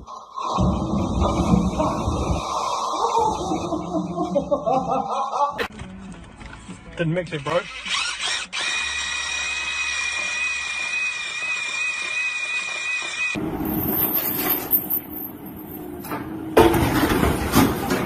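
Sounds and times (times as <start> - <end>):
electric drill whining: 7.8 - 13.4.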